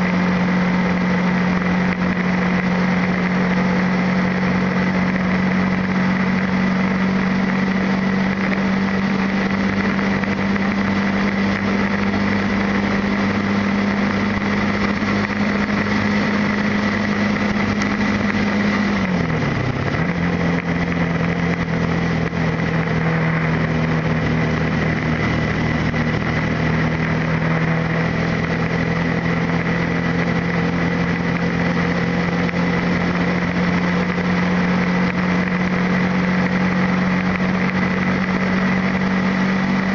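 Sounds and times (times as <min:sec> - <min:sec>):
motorcycle engine running: 0:00.0 - 0:39.9
road noise: 0:00.0 - 0:39.9.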